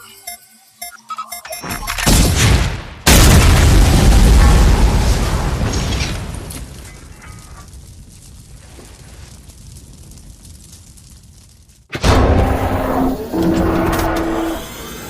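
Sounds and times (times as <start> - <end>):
loud explosion: 2.1 - 7.1, 11.9 - 14.2.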